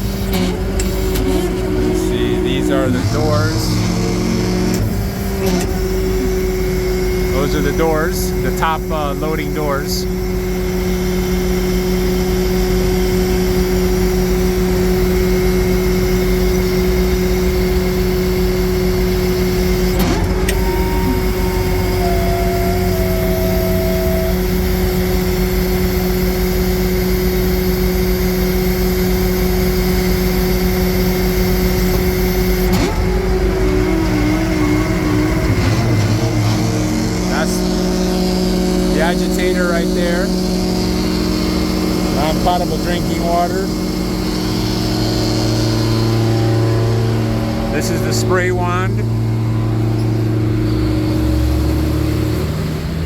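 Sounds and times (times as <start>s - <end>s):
diesel truck engine humming: 0.0s - 53.0s.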